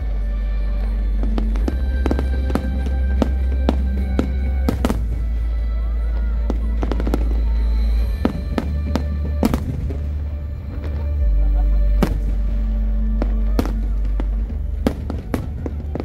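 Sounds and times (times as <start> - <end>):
fireworks bursting: 0.0 - 16.0
loud music with heavy bass: 0.0 - 16.0.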